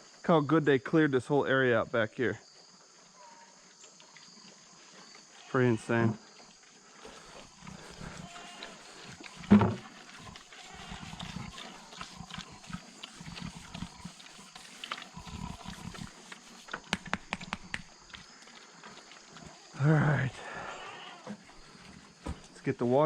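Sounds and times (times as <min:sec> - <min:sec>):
livestock grunting: 0:07.0 - 0:16.6, 0:19.4 - 0:22.5
loud animal call: 0:07.2 - 0:16.6.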